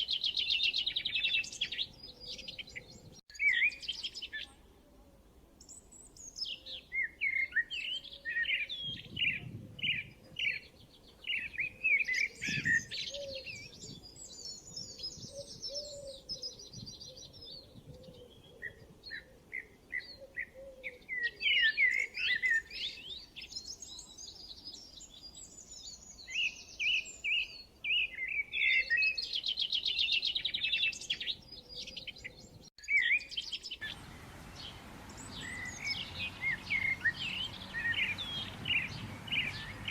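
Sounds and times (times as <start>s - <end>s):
songbirds chirping and trilling: 0.0s - 4.7s, 5.6s - 39.9s
steady hiss: 33.8s - 39.9s.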